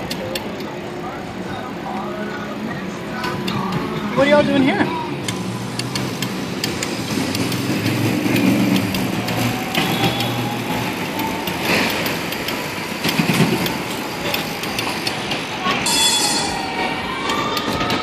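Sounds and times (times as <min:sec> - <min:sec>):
vehicle engine running: 0:00.0 - 0:15.6
street traffic: 0:00.0 - 0:18.0
sharp clicks: 0:05.2 - 0:15.4.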